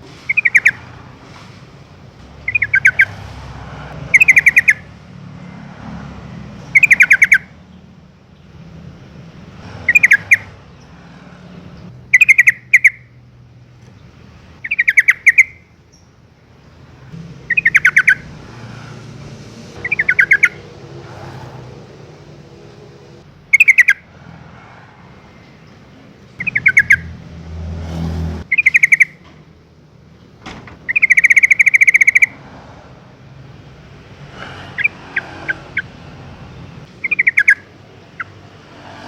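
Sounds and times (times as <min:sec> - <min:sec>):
bird chattering calls: 0:00.3 - 0:01.0, 0:02.4 - 0:03.2, 0:04.1 - 0:04.9, 0:06.6 - 0:07.6, 0:09.8 - 0:11.0, 0:12.1 - 0:13.1, 0:14.6 - 0:16.0, 0:17.4 - 0:18.4, 0:19.8 - 0:20.8, 0:23.5 - 0:24.1, 0:26.4 - 0:27.2, 0:28.5 - 0:29.3, 0:30.9 - 0:32.4, 0:36.9 - 0:38.4.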